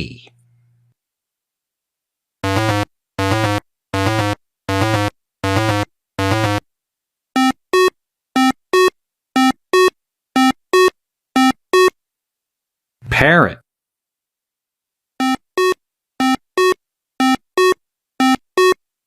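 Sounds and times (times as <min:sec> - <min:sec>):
buzzy electronic notes: 0:02.4 - 0:06.6.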